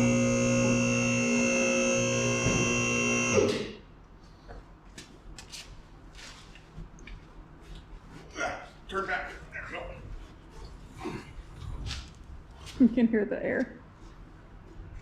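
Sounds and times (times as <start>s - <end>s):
electric air compressor humming: 0.0s - 3.8s.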